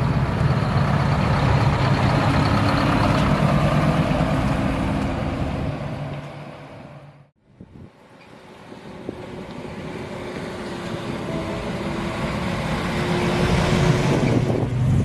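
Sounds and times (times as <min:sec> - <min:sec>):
heavy truck engine running: 0:00.0 - 0:07.3.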